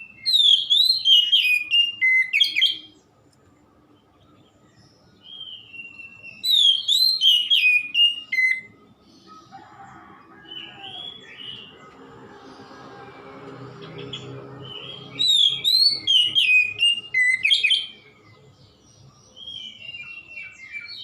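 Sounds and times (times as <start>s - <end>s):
bird whistled song: 0.0s - 3.0s, 5.1s - 9.7s, 10.5s - 11.8s, 13.8s - 18.4s, 19.3s - 21.0s.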